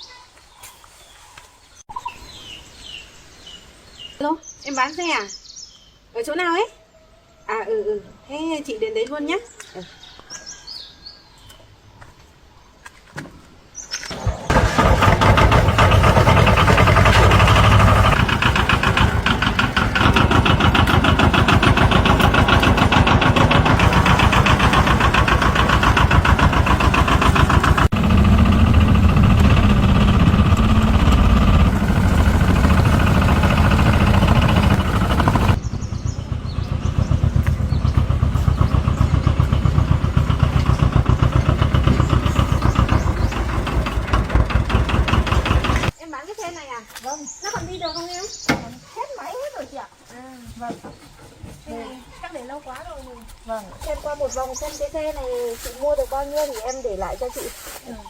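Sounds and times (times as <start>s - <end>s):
vehicle engine starting and running: 14.1s - 46.0s.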